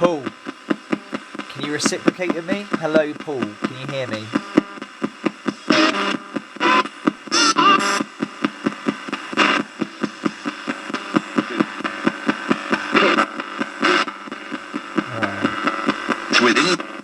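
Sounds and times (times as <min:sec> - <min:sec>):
radio static and broadcast snatches: 0:00.0 - 0:05.0.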